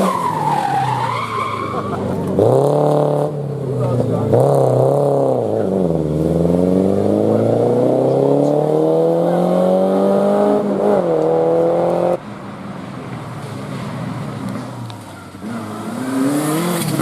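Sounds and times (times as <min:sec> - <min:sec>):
car engine accelerating hard: 0:01.4 - 0:12.2, 0:15.4 - 0:17.0.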